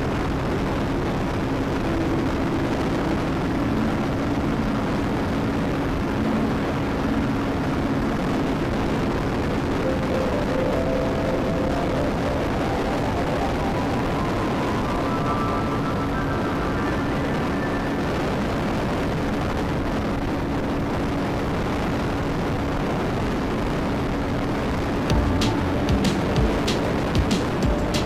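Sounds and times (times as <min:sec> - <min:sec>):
wind rush on microphone: 0:00.0 - 0:09.9, 0:13.7 - 0:25.1.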